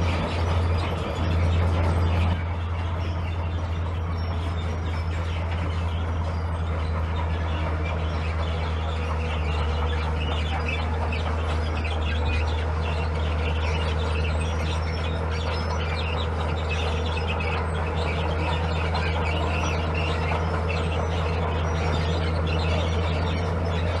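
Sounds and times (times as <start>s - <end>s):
birds chirping: 0.0s - 24.0s
diesel engine humming: 0.0s - 24.0s.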